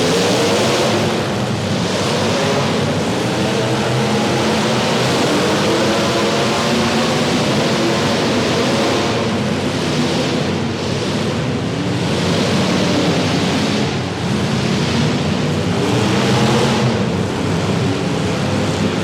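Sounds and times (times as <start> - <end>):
car engines revving: 0.0 - 19.0
rush of exhaust noise: 0.0 - 19.0.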